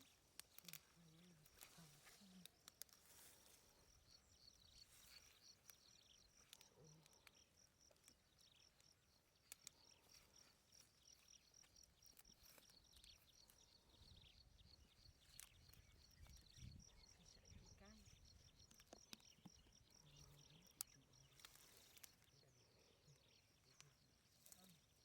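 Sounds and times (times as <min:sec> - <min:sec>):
small clicks: 0:00.0 - 0:03.6, 0:05.1 - 0:13.8, 0:15.1 - 0:16.8, 0:18.0 - 0:22.4
faint insect chirping: 0:00.0 - 0:25.0.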